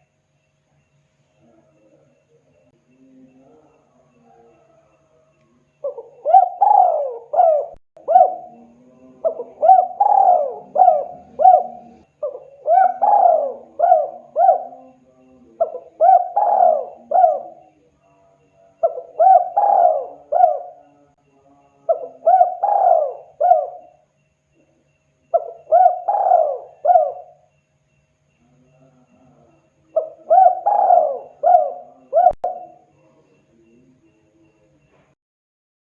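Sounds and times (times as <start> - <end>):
dove cooing: 5.8 - 17.8, 18.8 - 21.1, 21.9 - 24.0, 25.3 - 27.5, 28.8 - 33.9.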